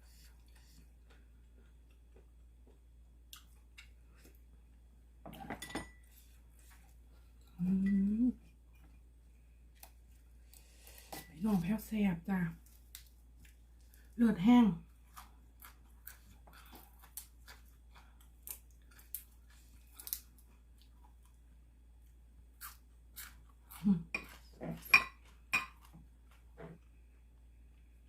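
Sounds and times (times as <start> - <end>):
person chewing: 0.2 - 4.6, 12.7 - 14.2, 14.9 - 26.4.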